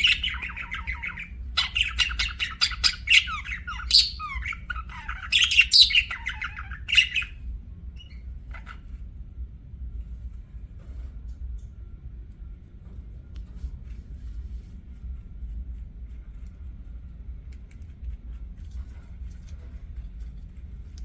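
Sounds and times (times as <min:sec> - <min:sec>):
budgerigars chattering and warbling: 0:00.0 - 0:07.4, 0:08.0 - 0:08.9
low steady hum: 0:00.0 - 0:21.0.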